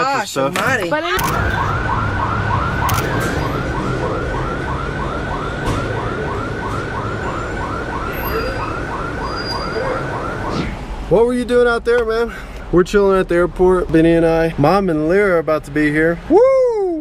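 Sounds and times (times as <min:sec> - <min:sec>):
low traffic rumble: 0:00.0 - 0:17.0
emergency siren yelping: 0:01.2 - 0:11.1.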